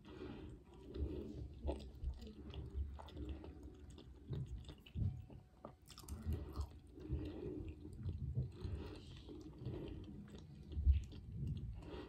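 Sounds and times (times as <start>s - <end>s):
person chewing sandwich: 0.0s - 12.0s.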